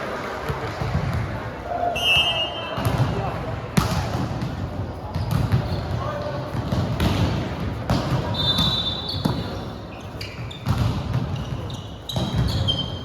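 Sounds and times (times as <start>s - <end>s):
murmur in a large hall: 0.0s - 13.0s
sneakers squeaking on court floor: 3.8s - 13.0s.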